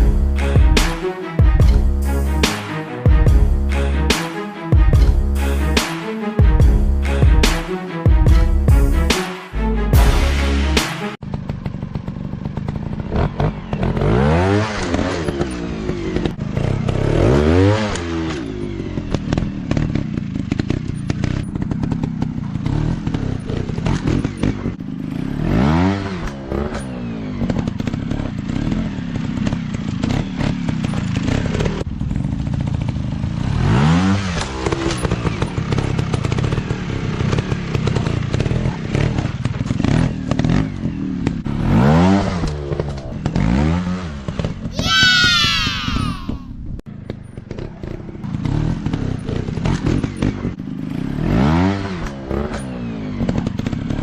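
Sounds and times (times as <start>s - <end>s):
dirt bike engines revving: 8.3s - 46.5s.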